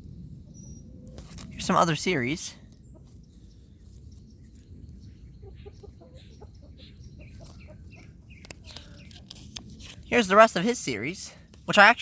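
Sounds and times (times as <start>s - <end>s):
hen clucking softly: 5.2s - 9.1s.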